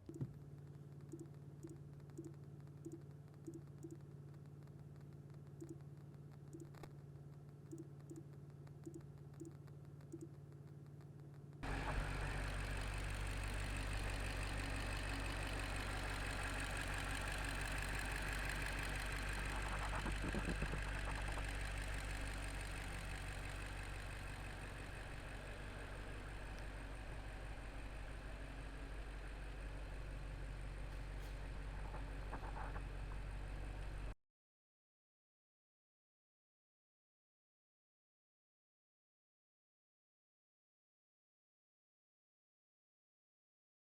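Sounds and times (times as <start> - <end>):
car engine idling: 0.1 - 34.1.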